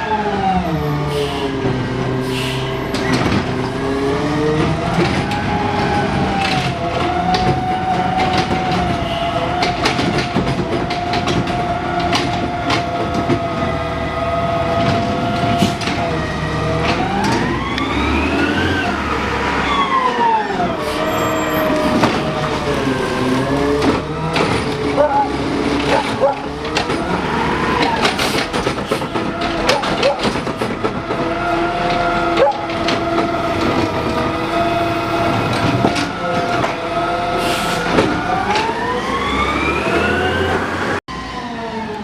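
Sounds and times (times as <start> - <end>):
garbage truck engine: 0.0 - 42.0
knocks and clanks: 2.9 - 13.8, 14.6 - 18.7, 21.6 - 37.2, 37.8 - 38.9.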